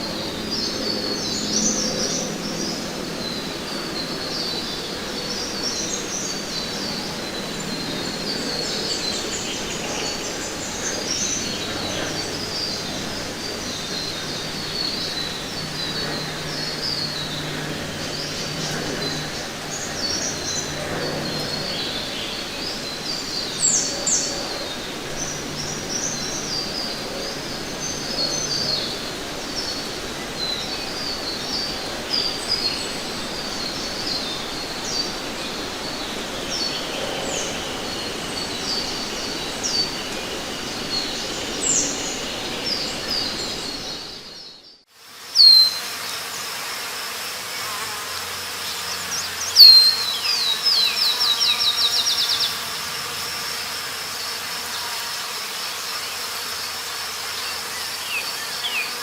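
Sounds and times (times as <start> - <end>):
steady background noise: 0.0 - 45.2
loud bird chirp: 45.4 - 45.8, 49.0 - 52.6.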